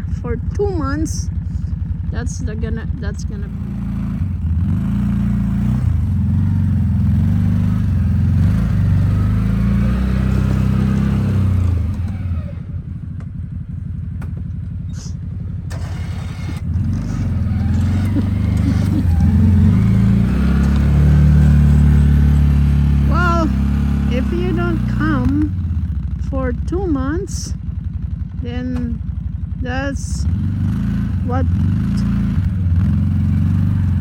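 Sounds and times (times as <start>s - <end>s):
engine running under load: 0.0s - 34.0s.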